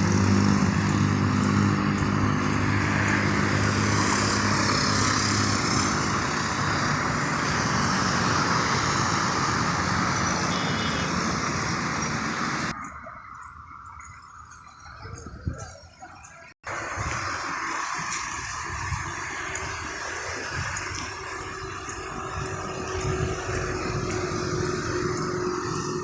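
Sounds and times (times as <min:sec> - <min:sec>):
vehicle engine running: 0:00.0 - 0:14.8, 0:16.4 - 0:26.0
rush of passing traffic: 0:00.0 - 0:15.5, 0:16.3 - 0:26.0.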